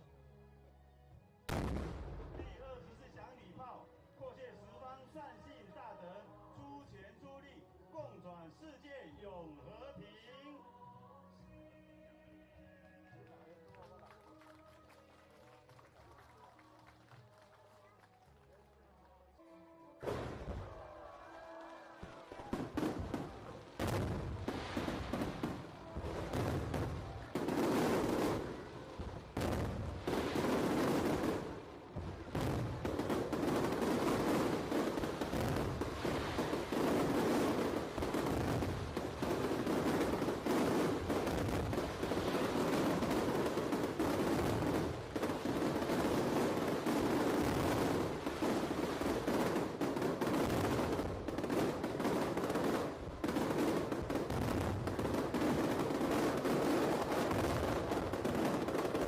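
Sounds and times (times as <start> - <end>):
fireworks bangs and crackles: 1.5 - 3.5, 20.0 - 59.0.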